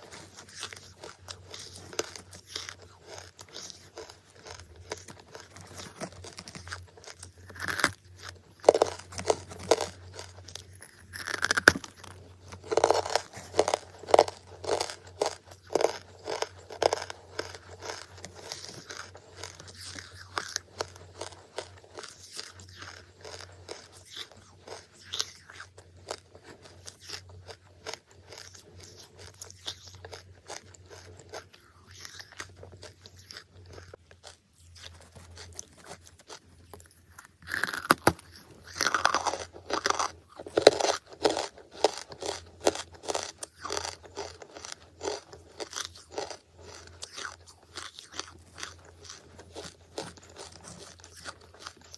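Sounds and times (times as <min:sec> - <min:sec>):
crunching and chewing charcoal: 0:00.0 - 0:51.9.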